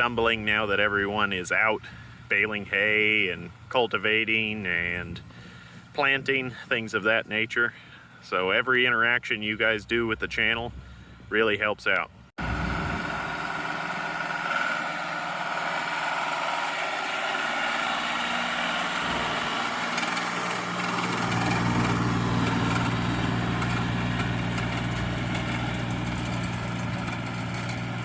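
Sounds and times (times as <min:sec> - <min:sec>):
tractor engine running: 0:12.4 - 0:28.0.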